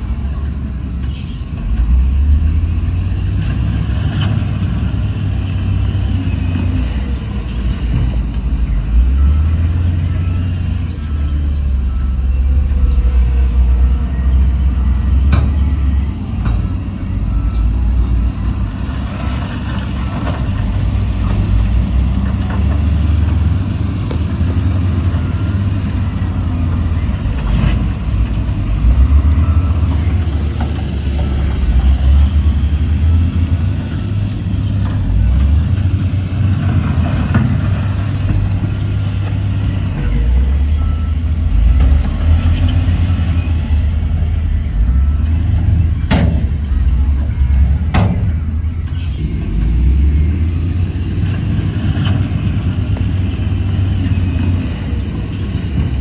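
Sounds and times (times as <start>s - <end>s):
diesel construction machinery rumbling: 0.0s - 56.0s.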